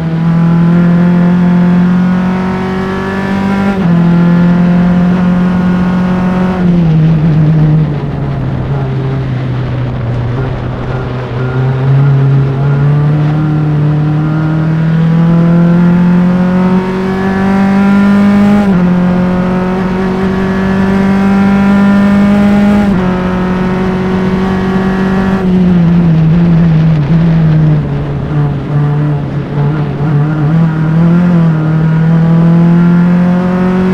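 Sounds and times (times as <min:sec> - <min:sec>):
race car engine at full throttle: 0:00.0 - 0:33.9.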